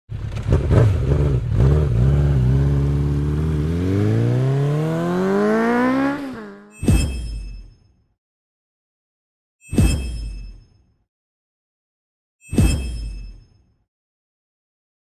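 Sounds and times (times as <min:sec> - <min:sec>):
motorcycle engine revving: 0:00.1 - 0:06.8.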